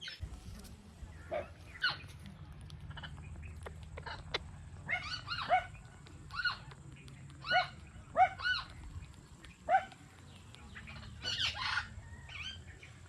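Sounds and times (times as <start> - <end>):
steady low hum: 0.0 - 13.0
parakeet calling: 10.8 - 12.6.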